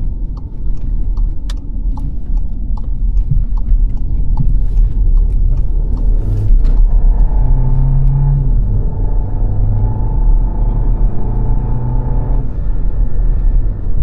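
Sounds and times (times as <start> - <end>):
sharp regular ticking: 0.0 - 6.5
car road and engine rumble: 0.0 - 14.0.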